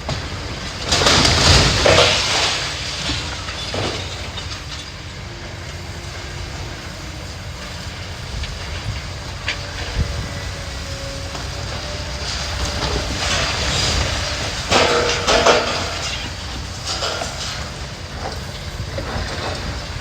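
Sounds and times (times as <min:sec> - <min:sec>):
heavy machinery rumbling: 0:00.0 - 0:20.0
knocks and clanks: 0:12.6 - 0:20.0.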